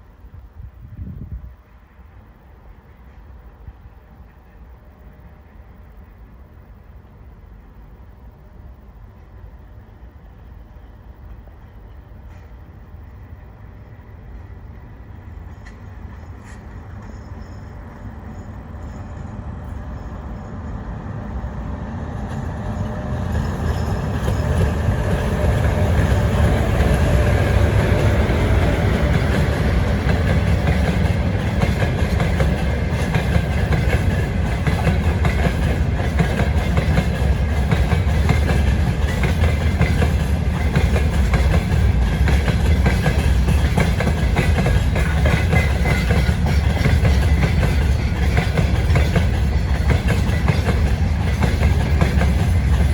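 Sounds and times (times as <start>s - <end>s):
freight train passing: 0.0s - 52.9s
wheels clattering over rail joints: 22.2s - 52.9s.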